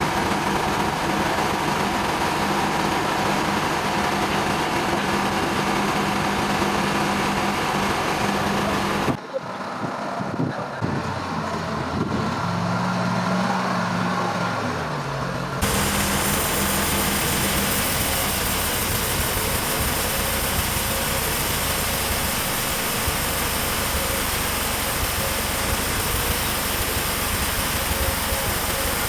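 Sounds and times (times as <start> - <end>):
engine-driven machinery running: 0.0 - 9.2, 15.6 - 29.0
engine hum with low drone: 0.0 - 29.0.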